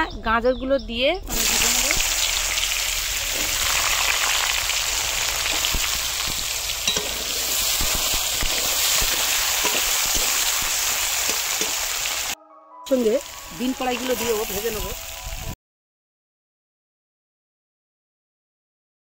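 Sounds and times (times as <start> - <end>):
carrots sizzling in oil: 1.3 - 15.6.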